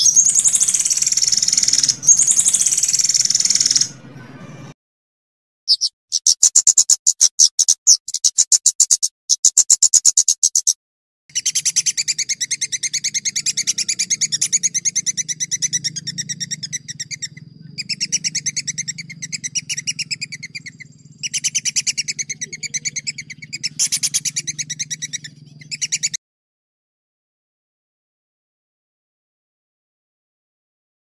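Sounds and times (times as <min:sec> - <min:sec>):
songbird rapid rolling trill: 0:00.0 - 0:04.8, 0:11.3 - 0:26.2.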